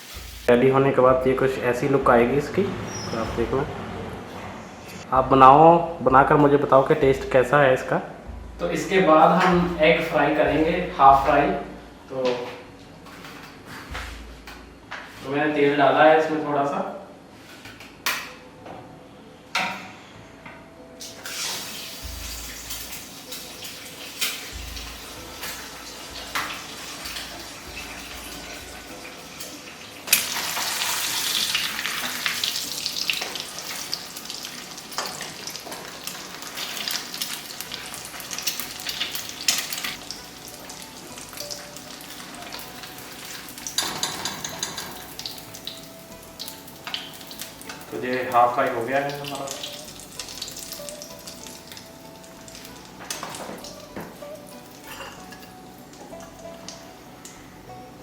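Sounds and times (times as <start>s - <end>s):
egg sizzling in oil: 0.0s - 0.5s, 21.1s - 48.0s
oil crackling in frying pan: 21.2s - 56.8s.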